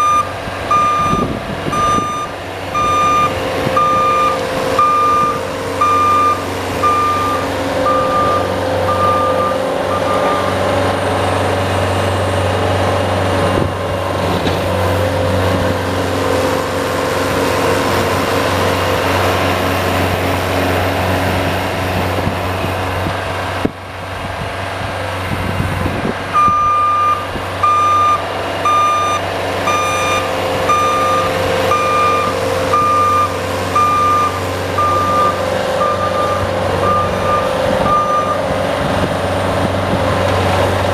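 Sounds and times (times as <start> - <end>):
reversing beeper: 0.0 - 10.6, 26.4 - 38.4
plow vehicle engine running: 0.0 - 40.9.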